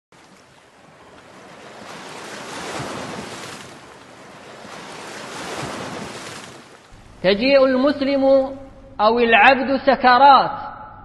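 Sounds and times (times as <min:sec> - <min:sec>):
ocean waves washing in: 0:00.1 - 0:08.3.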